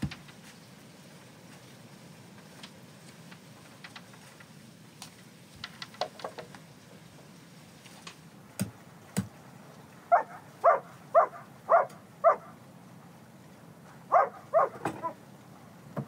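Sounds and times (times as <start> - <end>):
dog barking: 10.1 - 12.6, 14.1 - 15.2.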